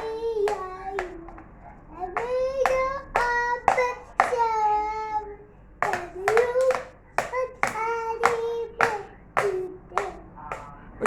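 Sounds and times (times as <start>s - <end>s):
toddler singing high notes: 2.0s - 10.3s.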